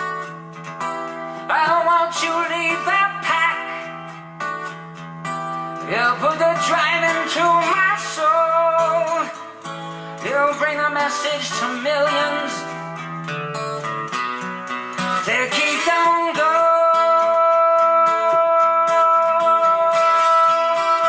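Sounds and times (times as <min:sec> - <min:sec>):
acoustic guitar: 0:00.0 - 0:21.0
person singing: 0:01.2 - 0:04.2, 0:05.8 - 0:13.0, 0:15.0 - 0:21.0.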